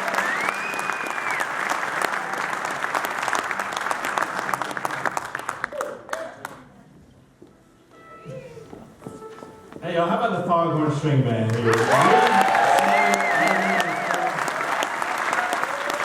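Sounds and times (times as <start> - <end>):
audience applauding: 0.0 - 6.6, 11.4 - 16.0
whistle: 0.2 - 1.5.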